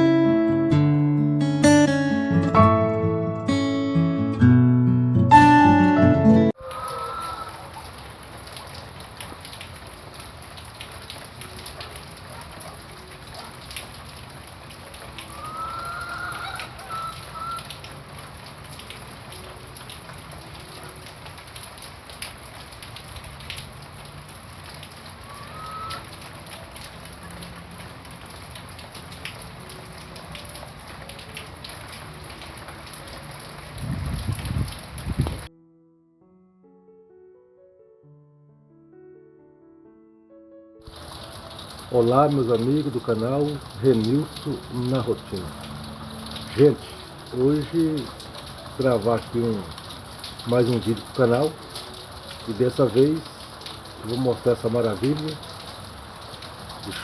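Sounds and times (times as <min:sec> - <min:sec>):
heavy rain falling: 0:06.5 - 0:35.5, 0:40.8 - 0:57.0
short bird calls: 0:25.3 - 0:26.1.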